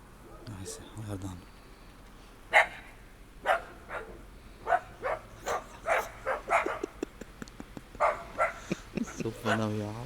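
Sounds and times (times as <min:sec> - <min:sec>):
dog barking: 0:00.2 - 0:01.0, 0:02.5 - 0:07.0, 0:08.0 - 0:09.8.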